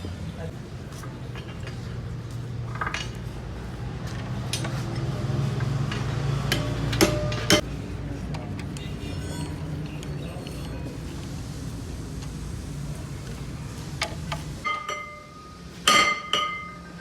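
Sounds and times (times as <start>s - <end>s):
metal tools clinking and tapping: 5.9s - 7.6s, 14.0s - 16.9s
loud ringing metal strikes: 6.5s - 7.6s.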